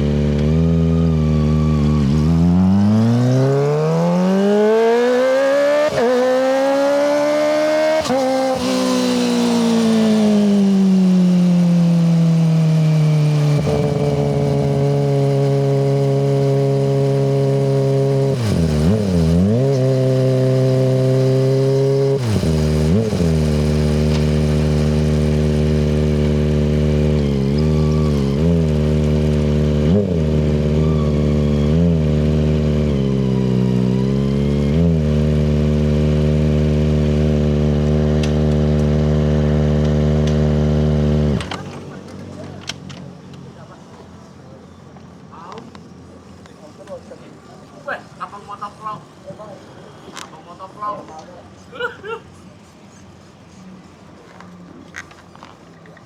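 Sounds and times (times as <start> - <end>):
motorcycle engine revving: 0.0 - 42.7.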